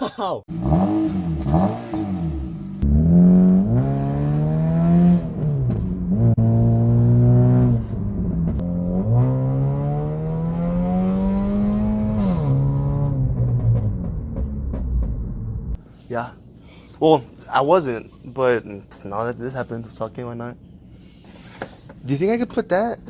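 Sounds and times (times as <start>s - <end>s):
car engine revving: 0.5s - 15.8s.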